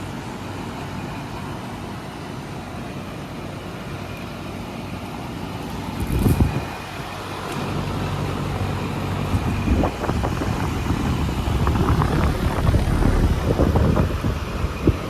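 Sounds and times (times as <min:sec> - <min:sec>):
air conditioner units running: 0:00.0 - 0:15.0
low rumble: 0:09.4 - 0:14.7.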